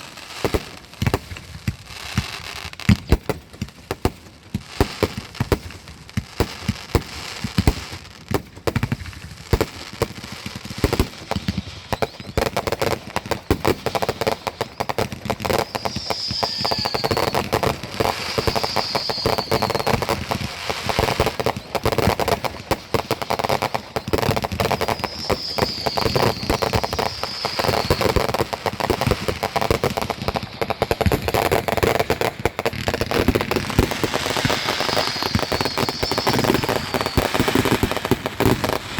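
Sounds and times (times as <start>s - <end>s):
fireworks falling whistles: 0.0s - 38.9s
fireworks popping and crackling: 0.0s - 38.9s.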